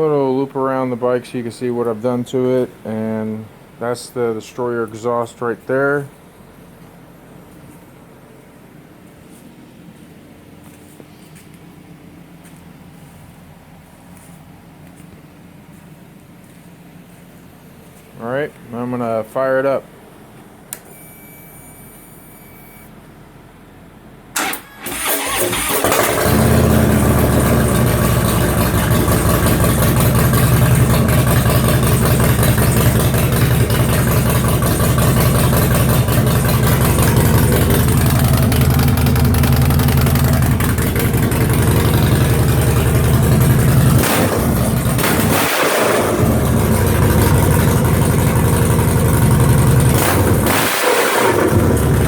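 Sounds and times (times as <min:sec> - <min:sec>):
motorcycle engine idling: 0:26.0 - 0:45.3, 0:46.0 - 0:50.4.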